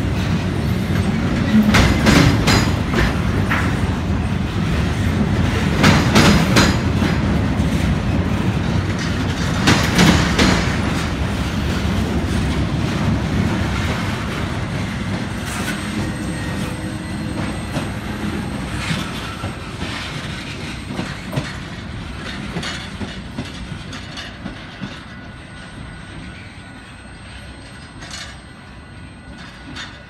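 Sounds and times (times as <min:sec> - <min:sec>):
train wheels rumbling: 0:00.0 - 0:30.0
wheels clicking over rail joints: 0:00.2 - 0:04.0, 0:04.6 - 0:16.0, 0:17.3 - 0:25.4.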